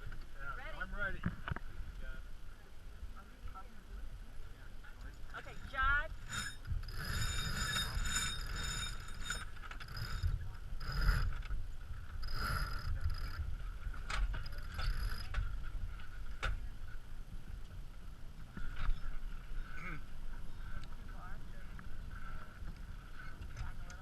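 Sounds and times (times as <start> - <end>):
wind buffeting microphone: 5.1 - 24.0.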